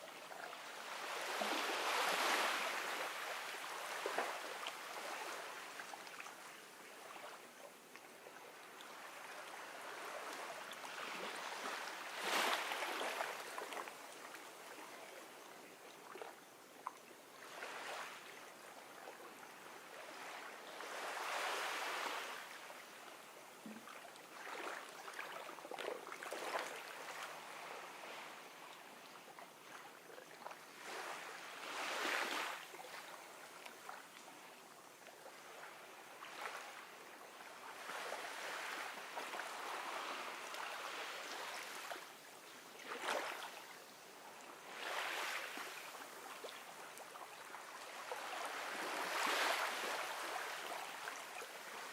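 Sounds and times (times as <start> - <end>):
ocean waves washing on beach: 0.0 - 7.6, 8.5 - 15.4, 19.4 - 23.6, 30.6 - 51.9.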